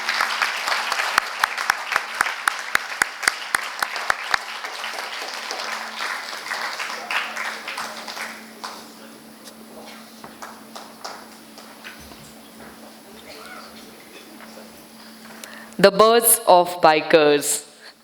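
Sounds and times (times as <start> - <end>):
close hands clapping steadily: 0.0 - 9.1, 9.9 - 12.8
audience applauding: 0.0 - 9.2, 10.2 - 14.6.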